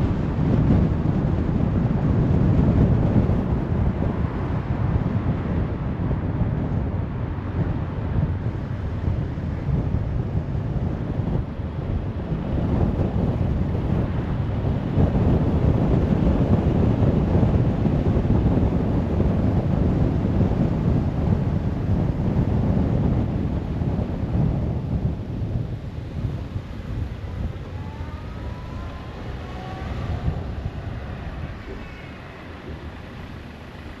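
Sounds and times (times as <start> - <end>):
tyre and wind noise: 0.0 - 34.0
faint car engine: 20.2 - 34.0.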